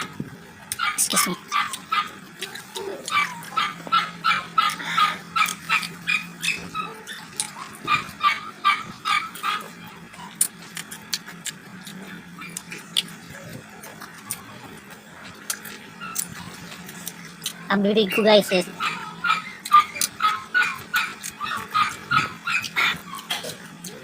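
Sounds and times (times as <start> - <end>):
steady low hum: 0.0 - 24.0
small dog yapping: 0.7 - 10.5, 15.6 - 24.0.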